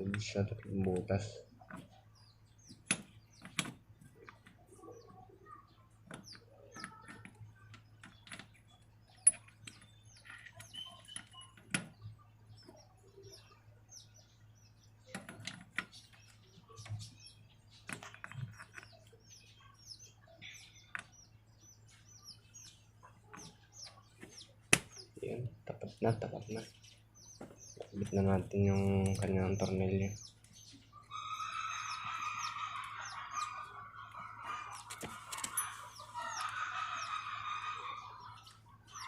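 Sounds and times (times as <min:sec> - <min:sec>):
small birds chirping: 0:00.0 - 0:39.0
small metal parts clicking: 0:09.2 - 0:11.4.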